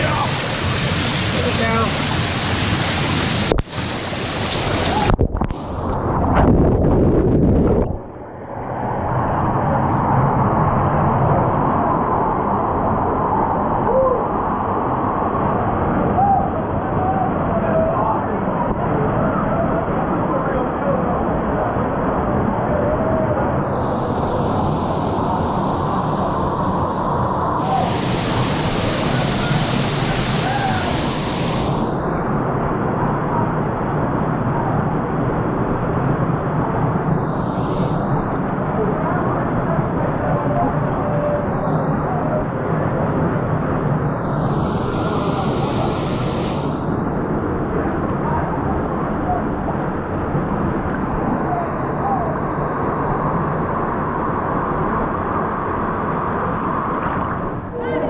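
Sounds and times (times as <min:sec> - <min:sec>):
waterfall rushing: 0:00.0 - 0:06.2, 0:23.7 - 0:32.4, 0:37.1 - 0:38.8, 0:44.0 - 0:47.2
steady rushing noise: 0:00.0 - 0:58.0.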